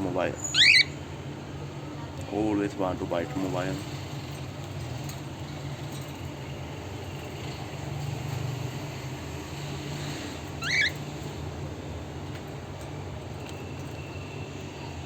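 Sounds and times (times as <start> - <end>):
cockatiel chirp: 0.4 - 1.0, 10.6 - 11.0.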